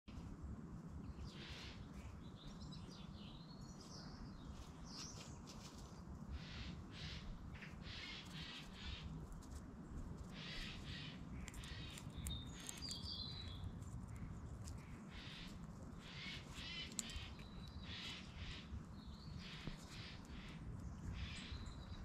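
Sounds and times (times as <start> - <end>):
steady low rumble: 0.1 - 22.0
harsh scratchy bird calls: 1.0 - 3.1, 3.8 - 22.0
birds chirping and whistling: 10.4 - 13.6.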